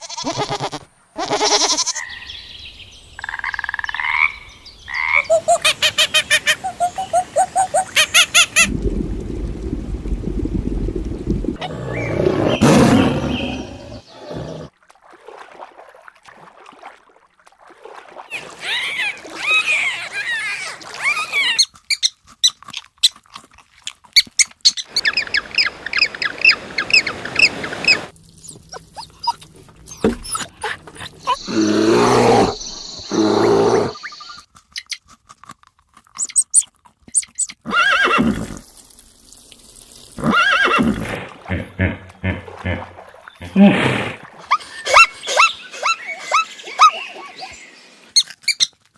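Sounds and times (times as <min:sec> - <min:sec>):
animal chirping: 0:28.4 - 0:35.0, 0:44.5 - 0:47.6.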